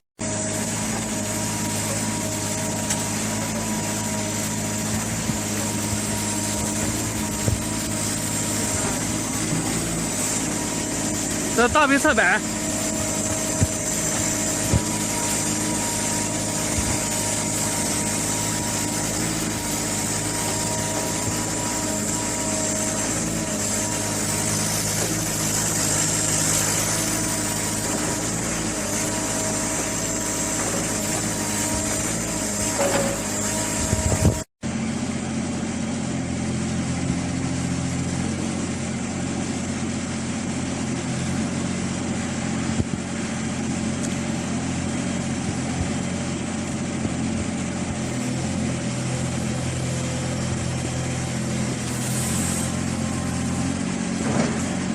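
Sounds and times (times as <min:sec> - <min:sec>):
steady high whine: 0:00.2 - 0:34.5
diesel excavator engine running: 0:00.2 - 0:54.9.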